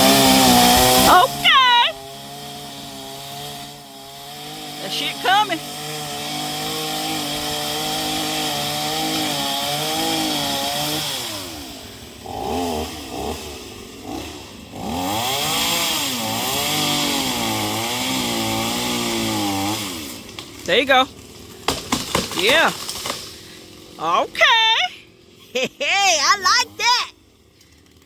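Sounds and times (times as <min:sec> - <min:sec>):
chainsaw cutting tree limb: 0:00.0 - 0:24.8, 0:26.2 - 0:28.0.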